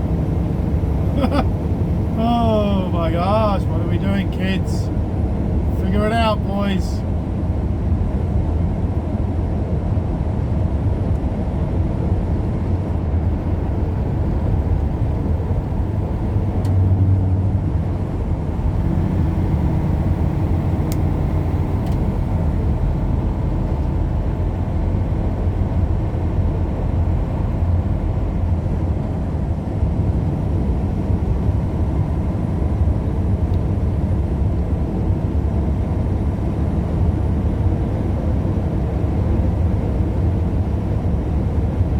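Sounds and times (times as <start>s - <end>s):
vehicle engine and tyre noise: 0.0s - 41.9s.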